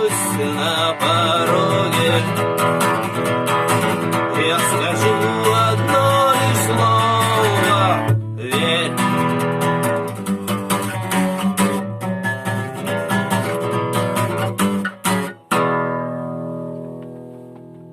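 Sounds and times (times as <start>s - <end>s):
acoustic guitar strumming: 0.0s - 17.9s.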